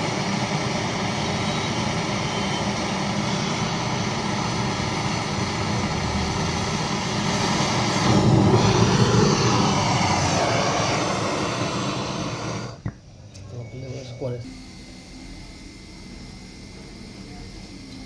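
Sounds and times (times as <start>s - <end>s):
machine drone with hiss: 0.0s - 13.0s.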